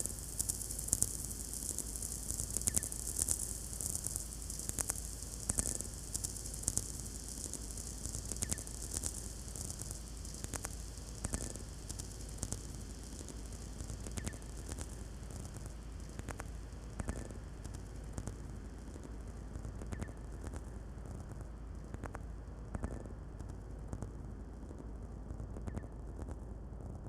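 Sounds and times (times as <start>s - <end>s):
radio receiver hiss: 0.0s - 13.2s.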